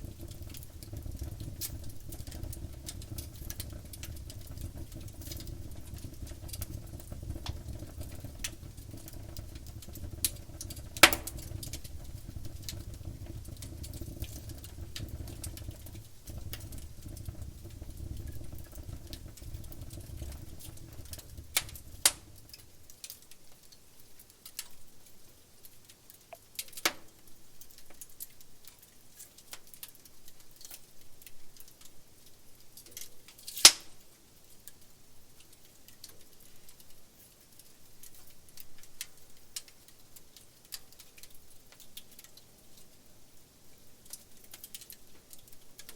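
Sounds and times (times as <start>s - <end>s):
sharp pops from burning wood: 0.0s - 45.9s
wood campfire crackling: 0.0s - 45.9s.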